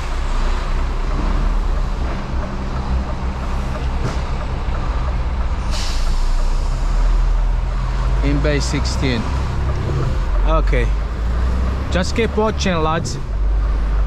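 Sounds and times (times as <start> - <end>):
lorry diesel engine humming: 0.0 - 14.0
air brake hiss: 5.7 - 6.7.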